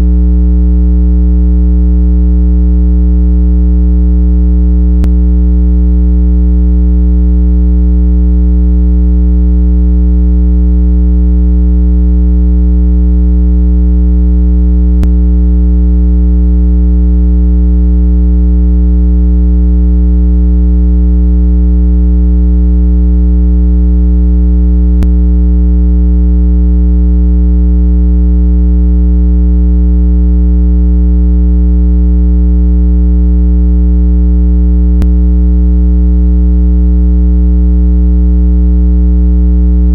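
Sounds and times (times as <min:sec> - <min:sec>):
low electronic tone: 0:00.0 - 0:18.7, 0:22.5 - 0:27.0, 0:34.7 - 0:35.5.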